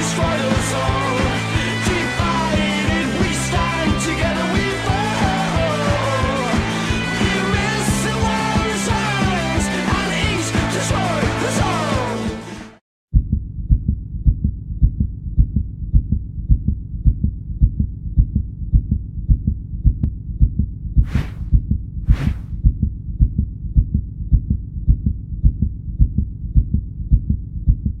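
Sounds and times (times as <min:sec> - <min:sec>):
heartbeat double thumps: 0:13.1 - 0:28.0.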